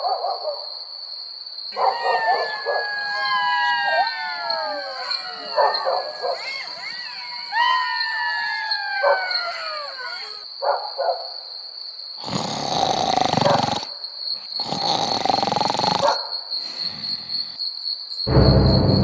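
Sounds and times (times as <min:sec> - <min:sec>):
insect chirring: 0:01.1 - 0:18.8
howl falling in pitch: 0:01.8 - 0:10.4.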